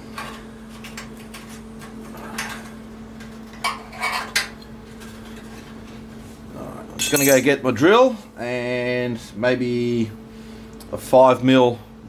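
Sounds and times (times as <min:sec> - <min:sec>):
steady low hum: 0:00.0 - 0:12.0
metal tools clinking: 0:07.0 - 0:07.6.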